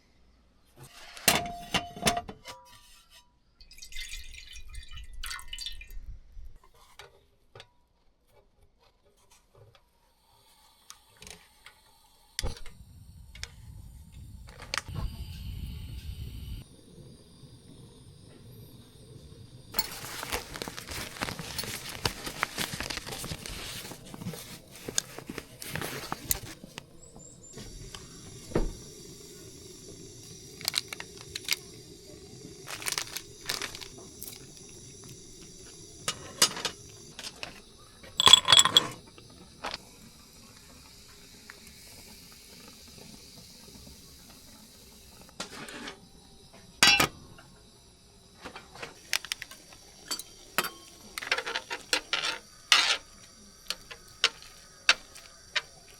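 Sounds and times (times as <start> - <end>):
insects shrilling: 25.1 - 39.1, 49.0 - 55.9
water-like noise: 27.5 - 45.3
dishes and utensils clinking: 38.2 - 39.0, 46.8 - 47.1, 50.1 - 55.0.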